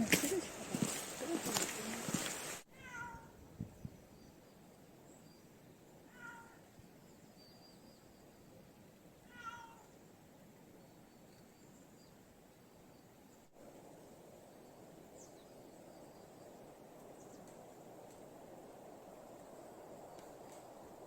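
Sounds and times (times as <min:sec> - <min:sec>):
low steady hiss: 0:00.0 - 0:21.0
cat meowing: 0:02.7 - 0:03.3, 0:06.1 - 0:06.6, 0:09.3 - 0:09.9.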